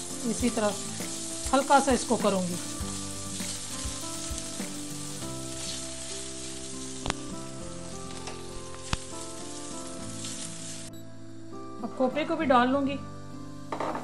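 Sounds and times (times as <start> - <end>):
spatula stirring in pan: 0.0 - 7.1
raisins sizzling in oil: 0.0 - 10.9.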